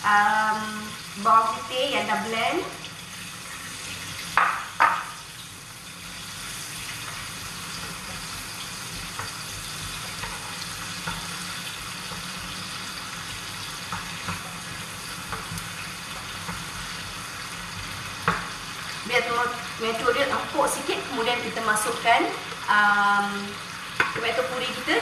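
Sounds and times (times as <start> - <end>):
food sizzling in hot oil: 0.0 - 25.0
spatula knocking on pan: 4.4 - 5.1.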